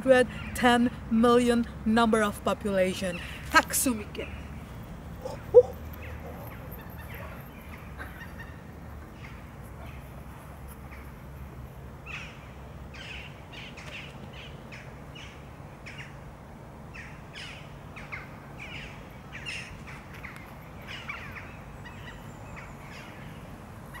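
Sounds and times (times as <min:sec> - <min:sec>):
birds calling: 0:04.0 - 0:11.3, 0:16.9 - 0:24.0.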